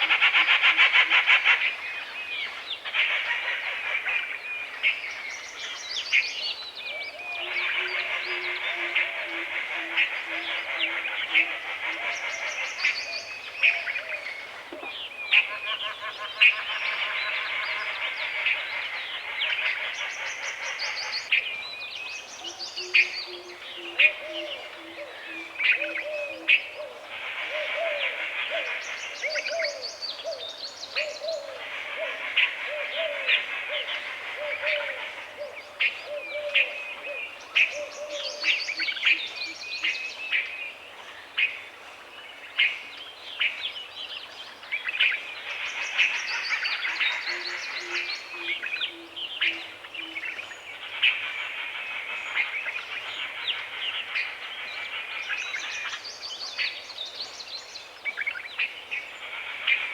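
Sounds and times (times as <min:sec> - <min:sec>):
birds chattering and calling: 0:00.0 - 0:59.9
low hooting bird call: 0:22.4 - 0:40.0.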